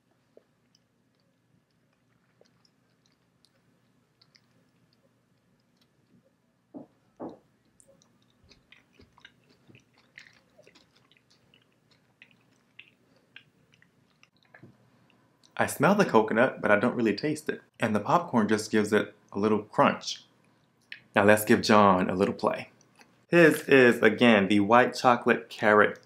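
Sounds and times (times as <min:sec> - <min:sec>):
chewing crunchy chocolate: 0:00.0 - 0:06.4, 0:07.4 - 0:15.6
mouth clicks: 0:06.8 - 0:14.6.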